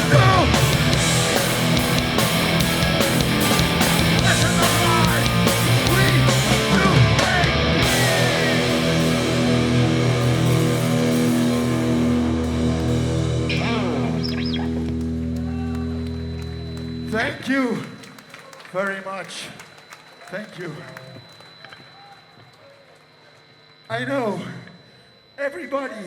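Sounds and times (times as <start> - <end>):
punk band playing: 0.0 - 17.2
sliding guitar notes: 0.0 - 17.2
drums: 0.0 - 17.3
distorted guitar chord ringing: 0.0 - 17.7.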